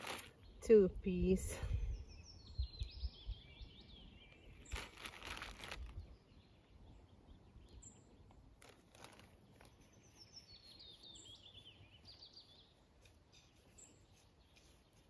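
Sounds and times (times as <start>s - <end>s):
birds singing faintly: 0.0s - 15.0s
brief rustle: 4.6s - 6.0s, 8.6s - 9.9s.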